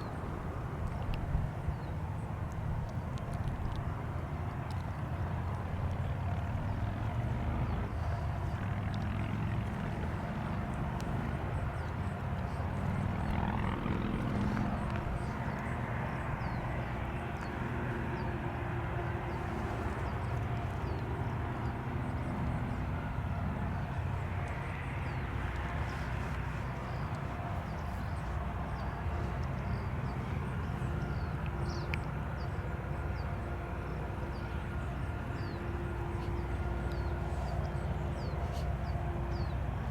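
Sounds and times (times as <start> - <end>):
faint steady tones: 0.0 - 39.9
freight train rumbling: 21.2 - 39.9.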